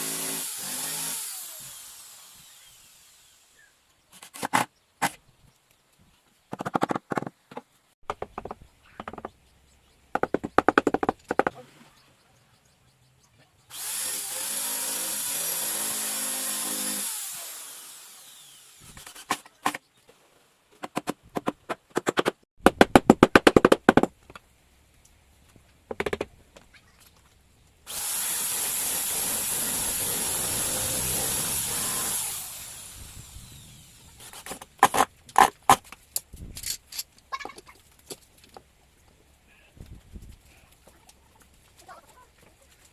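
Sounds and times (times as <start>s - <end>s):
electric drill running: 0.0s - 3.6s, 13.7s - 19.2s, 27.9s - 34.2s
knocks on wooden boards: 6.5s - 9.4s, 10.1s - 11.5s, 25.9s - 26.3s.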